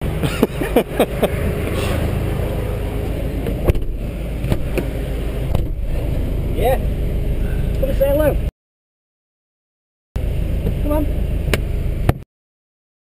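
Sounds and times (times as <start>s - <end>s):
car engine idling: 0.0s - 8.5s, 10.2s - 12.1s.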